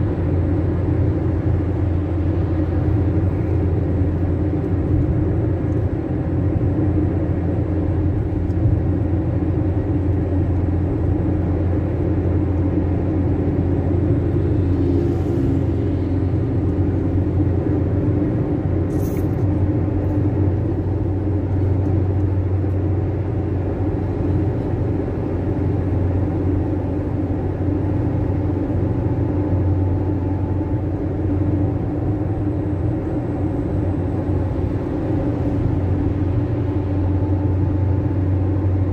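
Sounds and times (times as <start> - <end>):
van engine and road rumble: 0.0 - 38.9.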